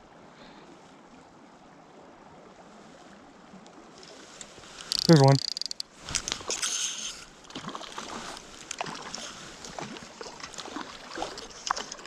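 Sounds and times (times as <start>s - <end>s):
stream flowing: 0.0s - 12.0s
water splashing: 4.1s - 12.0s.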